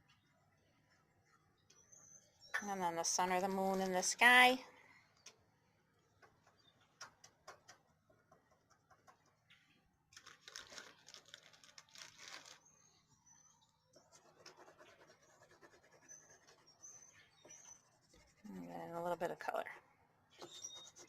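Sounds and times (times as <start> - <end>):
small bird chirping: 12.4 - 18.1, 20.3 - 21.0.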